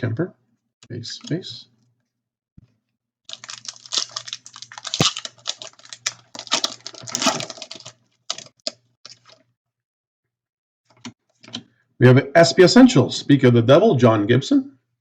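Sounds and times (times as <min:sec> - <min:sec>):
cards clicking and rustling: 0:03.3 - 0:09.4.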